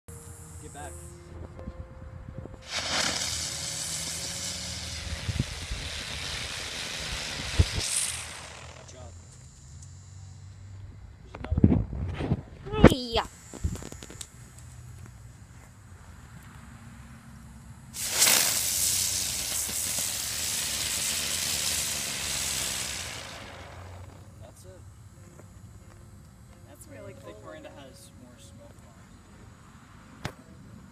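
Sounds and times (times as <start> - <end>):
firework bang: 2.6 - 9.0, 18.0 - 24.2
firework spitting hiss: 2.6 - 10.1, 13.3 - 14.4, 17.9 - 24.3.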